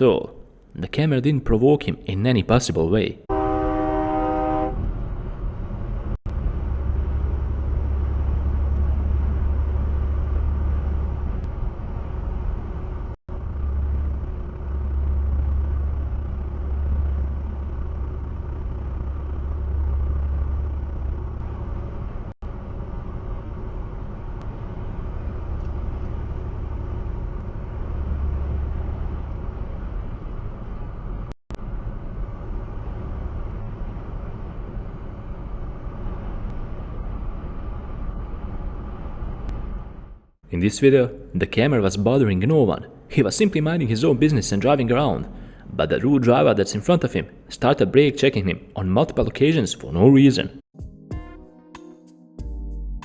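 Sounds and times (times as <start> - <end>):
car horn: 3.3 - 4.9
car engine and road rumble: 4.7 - 49.4.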